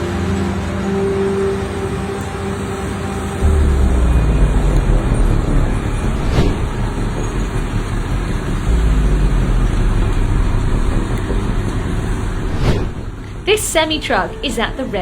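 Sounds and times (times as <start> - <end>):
vehicle low rumble: 3.4 - 14.1.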